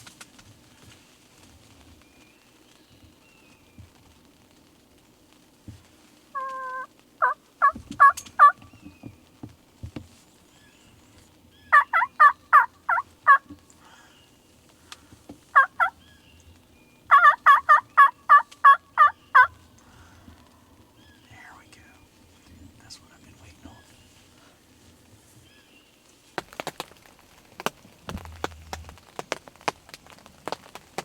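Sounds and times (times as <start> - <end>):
wild turkey hen yelping: 6.4 - 9.0, 11.6 - 13.6, 15.5 - 19.8.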